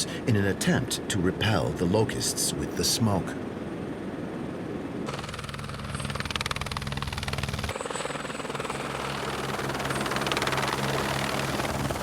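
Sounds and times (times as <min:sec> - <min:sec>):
helicopter engine hum: 0:03.4 - 0:12.0
helicopter rotor blades chopping: 0:04.6 - 0:12.0.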